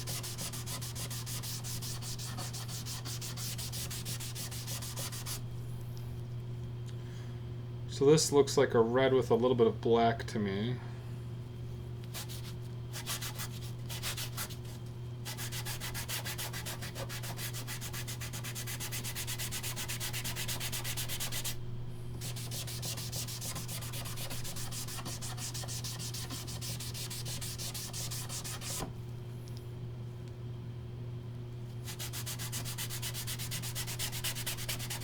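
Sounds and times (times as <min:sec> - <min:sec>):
rubbing strokes on wood: 0:00.0 - 0:05.4, 0:22.2 - 0:28.8, 0:31.9 - 0:35.0
steady low hum: 0:00.0 - 0:35.0.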